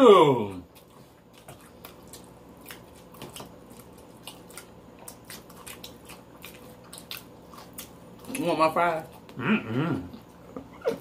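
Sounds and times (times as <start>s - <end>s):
wet chewing and lip-smacking: 0.6s - 9.4s.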